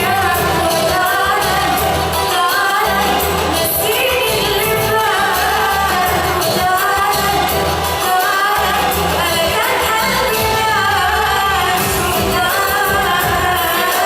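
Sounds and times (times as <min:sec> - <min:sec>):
pop song with singing: 0:00.0 - 0:14.0
pulsing bass beat: 0:10.0 - 0:13.7.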